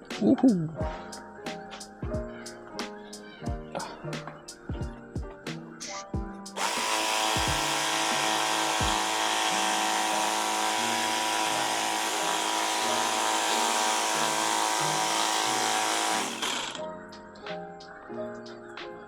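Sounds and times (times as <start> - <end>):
background music with a beat: 0.0 - 9.4, 16.7 - 19.0
water jet pump motor: 6.6 - 16.8.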